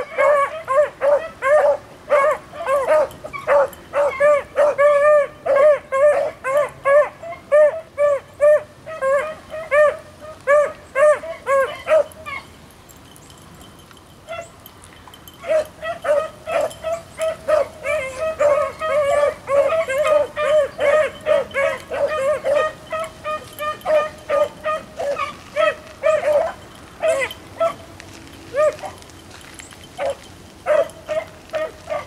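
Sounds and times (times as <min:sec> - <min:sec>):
beagles baying: 0:00.0 - 0:32.0.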